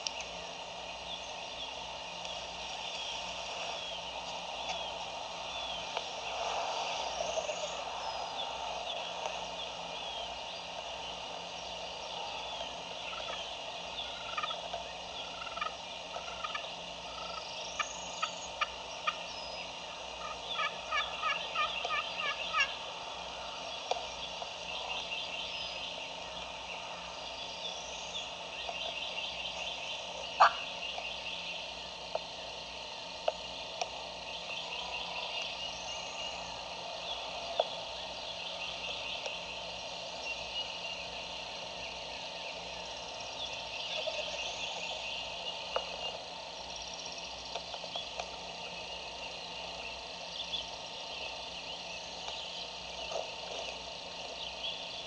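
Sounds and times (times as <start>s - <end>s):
small chirping calls: 11.6s - 32.3s, 33.3s - 55.0s
turkey gobbling faintly: 14.0s - 14.6s, 15.2s - 19.2s, 20.2s - 22.8s, 30.4s - 30.7s.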